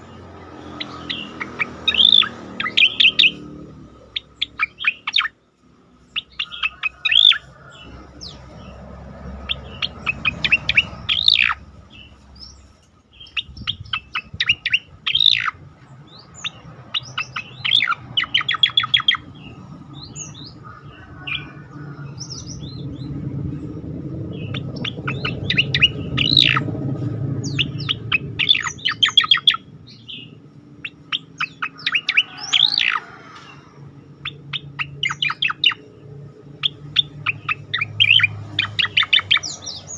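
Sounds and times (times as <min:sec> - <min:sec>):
songbird chirping and whistling: 0:00.6 - 0:05.4, 0:06.0 - 0:08.7, 0:09.4 - 0:35.9, 0:36.5 - 0:39.9
low background rumble: 0:02.4 - 0:32.6.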